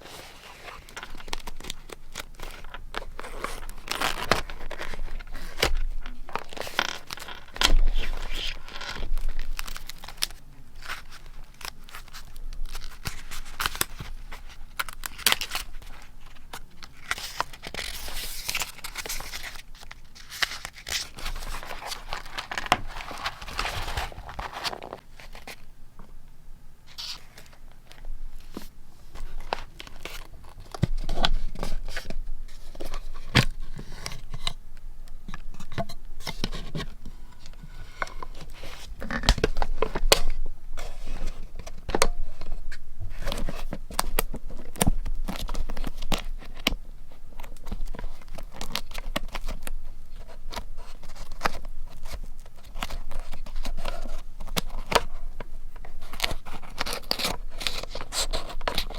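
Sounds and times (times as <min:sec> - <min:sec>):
paper rustling and tearing: 0:00.0 - 0:25.6, 0:56.0 - 0:58.9.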